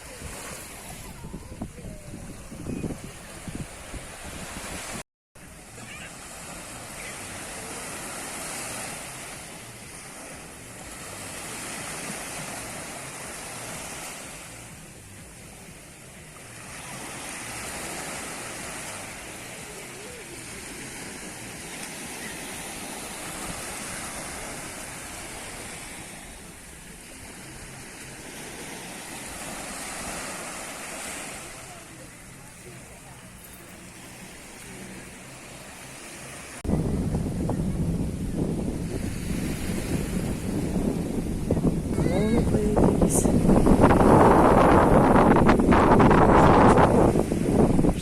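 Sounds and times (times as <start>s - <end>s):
wind on microphone: 0.0s - 5.0s, 36.6s - 48.0s
sea waves breaking on beach: 0.0s - 48.0s.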